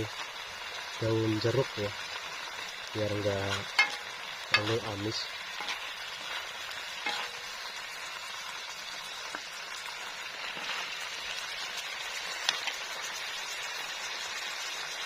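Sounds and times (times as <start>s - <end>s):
food sizzling in a frying pan: 0.0s - 15.0s
utensil clicking against pan: 3.7s - 4.8s, 12.4s - 12.8s.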